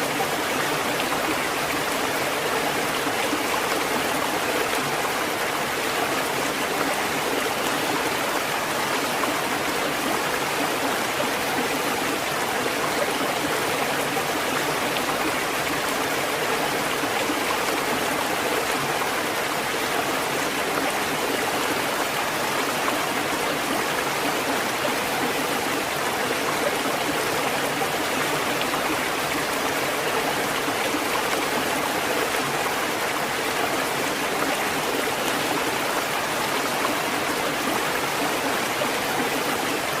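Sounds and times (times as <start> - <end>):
rushing water: 0.0 - 40.0.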